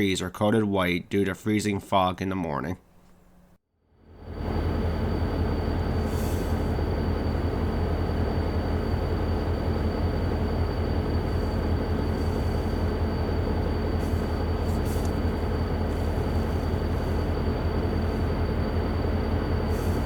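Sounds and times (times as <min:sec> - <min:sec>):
passenger train rumbling past: 0:04.1 - 0:20.0.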